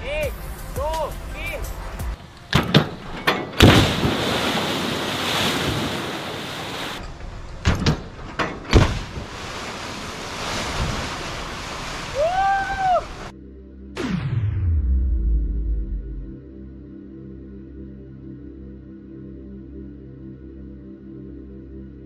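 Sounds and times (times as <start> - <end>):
water rushing and churning: 3.0 - 13.3
car splashing into water: 3.5 - 7.0.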